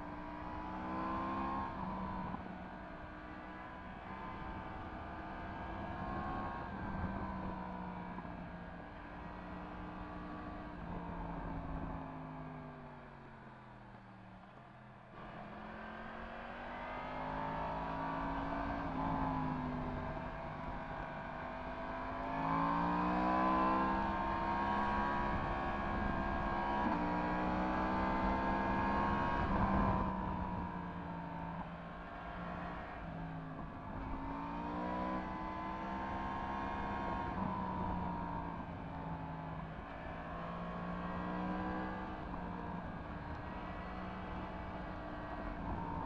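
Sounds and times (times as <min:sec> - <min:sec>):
motorcycle engine accelerating: 0:15.1 - 0:46.0.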